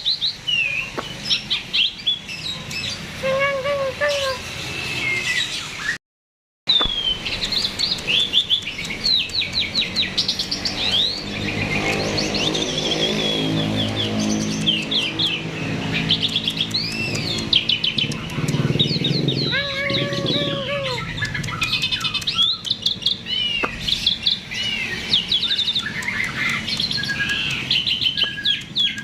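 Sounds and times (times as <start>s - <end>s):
starling singing: 0.0s - 6.0s, 6.7s - 29.0s.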